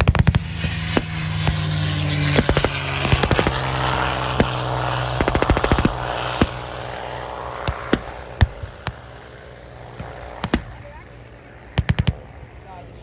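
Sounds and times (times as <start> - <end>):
blank gunshots: 0.0 - 6.8, 10.0 - 10.9
steady low hum: 0.0 - 13.0
automatic weapon burst: 2.3 - 6.6.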